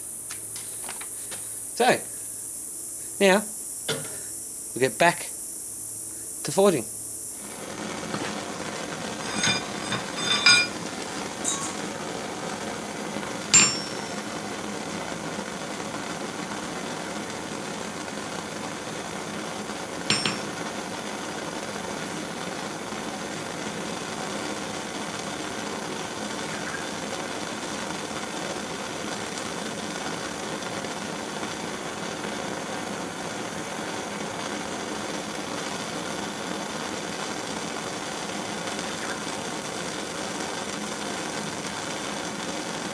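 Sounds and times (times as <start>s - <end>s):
torch hissing: 7.3s - 42.9s
hammer clinking on anvil: 9.2s - 10.8s, 11.4s - 11.9s, 13.5s - 14.2s, 20.1s - 20.6s.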